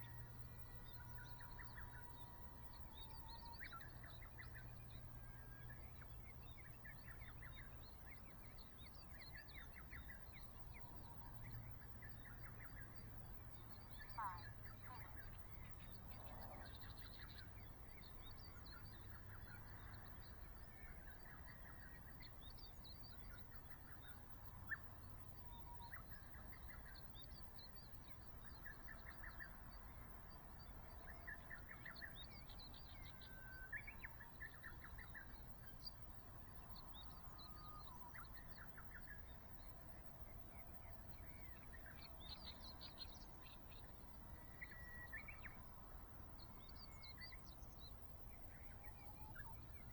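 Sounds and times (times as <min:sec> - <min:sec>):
faint wild birds chirping: 0:00.0 - 0:49.9
low background hiss: 0:00.0 - 0:49.9.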